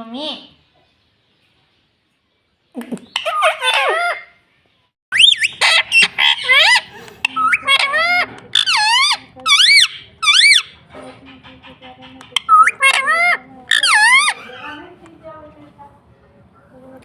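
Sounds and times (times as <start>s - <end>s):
parrot squawking: 3.1s - 4.4s, 5.1s - 15.0s.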